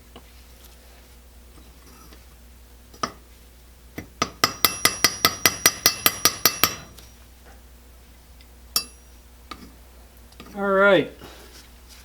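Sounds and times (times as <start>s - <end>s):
metal-on-metal tapping: 4.0s - 7.0s, 8.8s - 9.7s.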